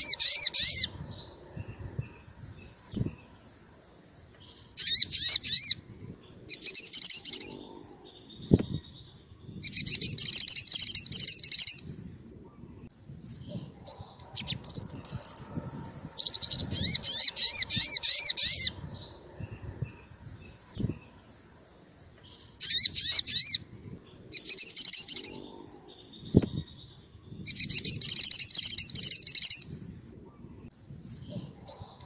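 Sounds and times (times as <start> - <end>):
bird trilling: 0.0 - 2.3, 2.9 - 11.9, 13.2 - 15.5, 16.2 - 29.7
bird chirps: 0.0 - 15.5, 16.2 - 32.0.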